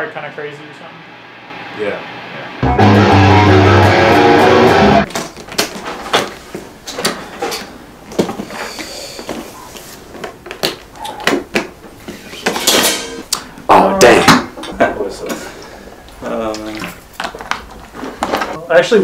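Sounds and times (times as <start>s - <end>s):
electric guitar: 1.6s - 5.1s
low bass notes: 2.6s - 5.1s.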